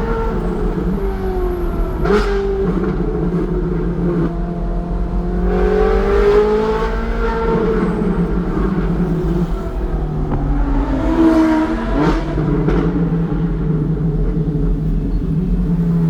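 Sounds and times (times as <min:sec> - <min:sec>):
car engine accelerating: 0:00.0 - 0:16.0
exhaust crack: 0:00.0 - 0:16.0.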